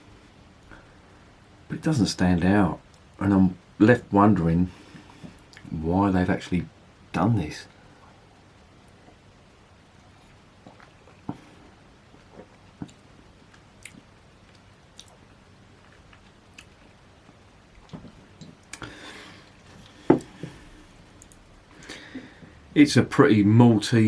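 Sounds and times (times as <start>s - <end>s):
lip smacks and clicks: 12.3s - 15.2s, 15.8s - 18.9s
breathy rush: 18.8s - 21.0s.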